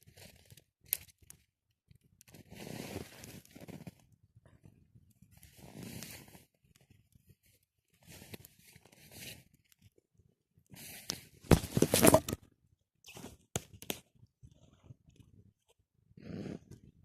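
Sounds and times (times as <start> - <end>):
rustling and crunching: 11.5 - 12.4.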